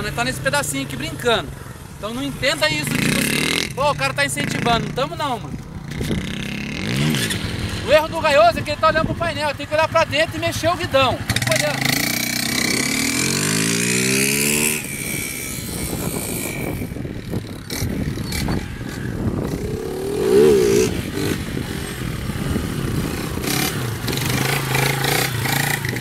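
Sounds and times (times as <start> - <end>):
motorcycle engine revving: 17.5 - 26.0.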